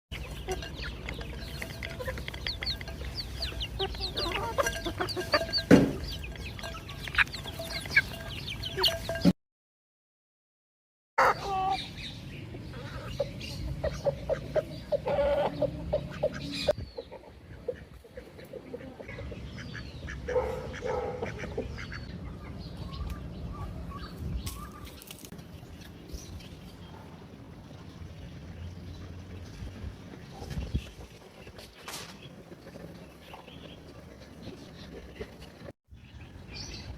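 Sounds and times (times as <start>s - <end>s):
chicks peeping: 0.1s - 9.3s
hens clucking: 0.1s - 9.3s, 12.5s - 22.1s, 27.6s - 35.7s.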